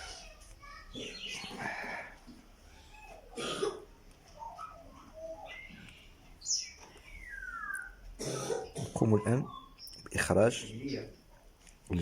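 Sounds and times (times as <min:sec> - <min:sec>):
person coughing: 0:03.4 - 0:03.9, 0:08.2 - 0:09.0
faint bird chirps: 0:04.4 - 0:11.4.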